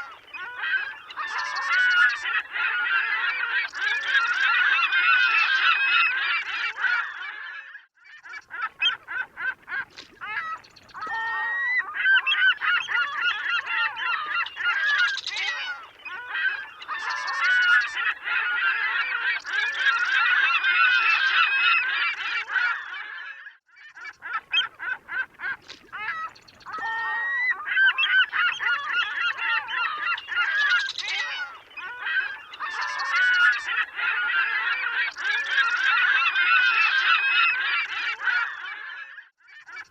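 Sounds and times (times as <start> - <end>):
gulls calling: 0.0 - 7.1, 8.4 - 23.0, 24.0 - 39.0.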